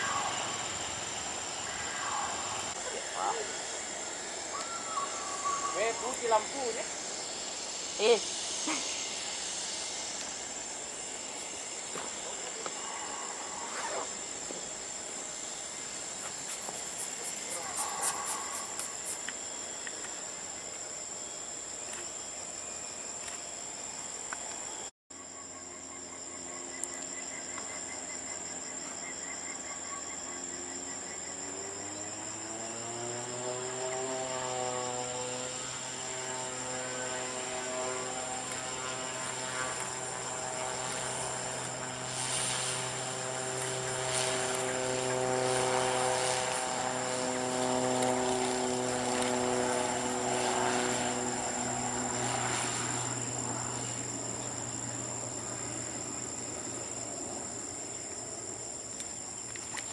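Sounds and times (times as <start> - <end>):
airliner engines humming: 0.0 - 21.0, 33.2 - 59.5
insects chirping: 0.0 - 59.9.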